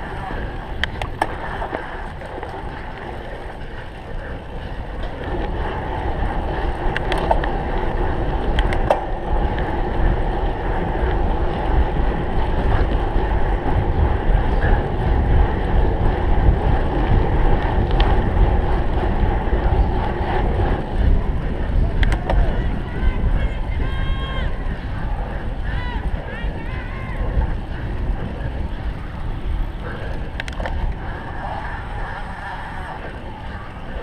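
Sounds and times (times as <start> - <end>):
bike rumble at speed: 0.0 - 34.0
wind rushing over microphone: 0.0 - 34.0.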